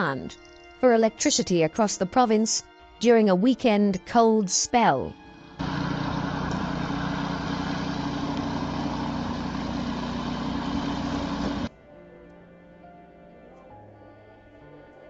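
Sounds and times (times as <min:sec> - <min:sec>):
vehicle engine running: 0:05.4 - 0:11.7.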